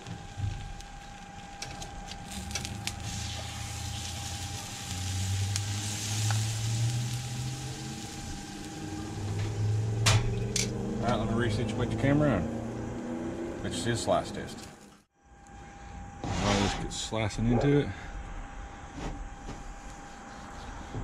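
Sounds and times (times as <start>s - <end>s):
food sizzling on a griddle: 0.0s - 9.8s.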